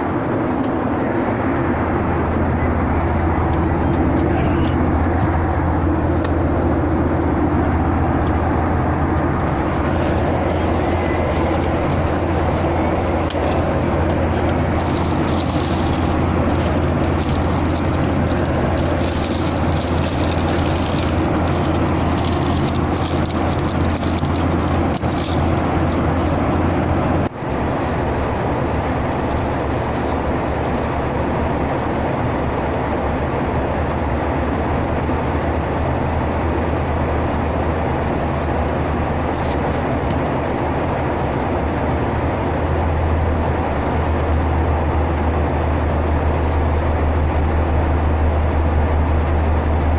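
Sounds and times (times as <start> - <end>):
airliner cabin engine and airflow noise: 0.0 - 49.9.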